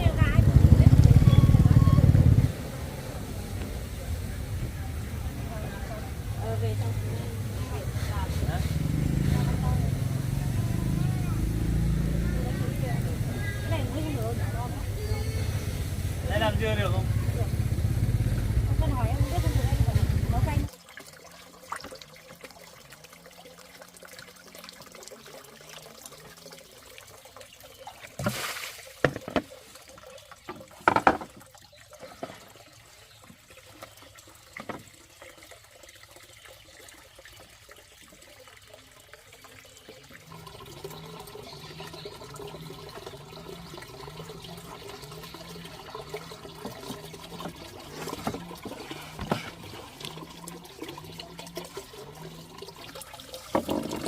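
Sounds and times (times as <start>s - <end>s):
water trickling: 0.0s - 54.0s.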